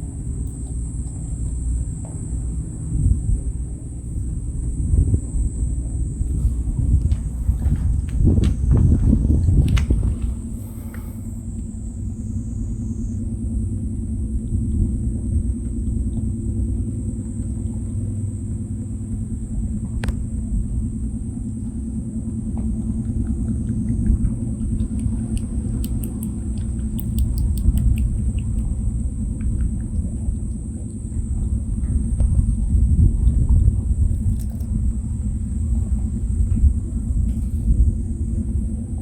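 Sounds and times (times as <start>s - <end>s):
loud low rumble: 1.4s - 39.0s
rabbit lapping water: 6.2s - 11.4s, 22.5s - 39.0s.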